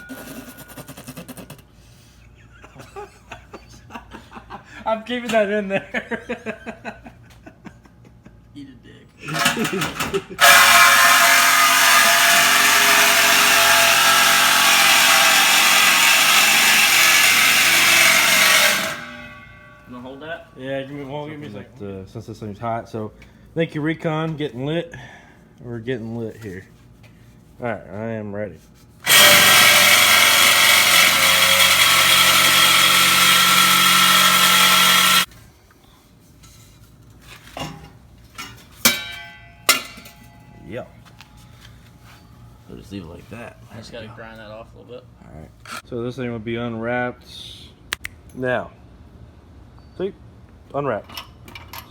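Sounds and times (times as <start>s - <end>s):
power tool cutting metal pipe: 10.4s - 20.2s, 29.0s - 35.3s
sharp metal knocks: 38.8s - 40.4s.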